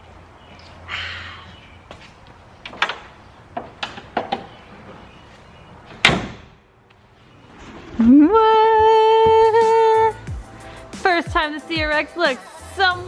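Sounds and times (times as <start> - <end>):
door slamming: 6.0 - 6.6.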